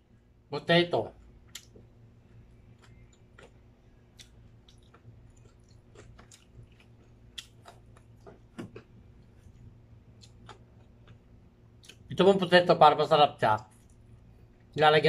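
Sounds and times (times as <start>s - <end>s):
faint low hum: 0.0s - 15.0s
person chewing and crunching: 1.4s - 12.1s.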